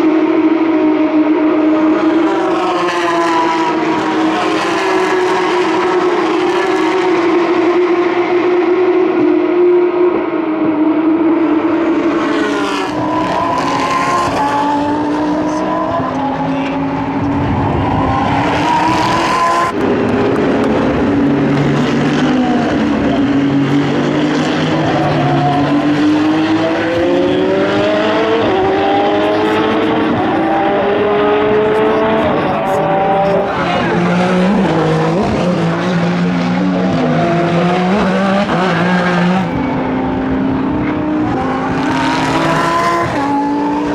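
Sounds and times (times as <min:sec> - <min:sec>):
race car engines: 0:00.0 - 0:43.9.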